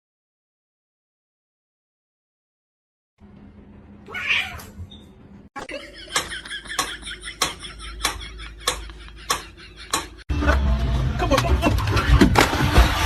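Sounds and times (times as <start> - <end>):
cat meowing: 4.1 - 4.8.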